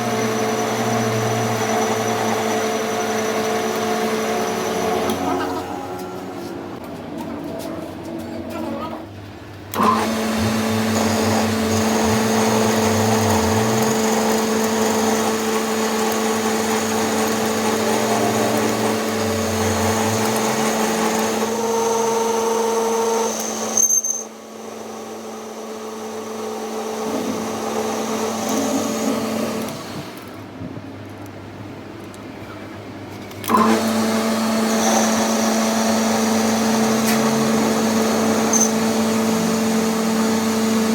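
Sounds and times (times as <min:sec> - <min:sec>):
power tool motor humming: 0:00.0 - 0:05.6, 0:09.7 - 0:23.9, 0:33.5 - 0:40.9.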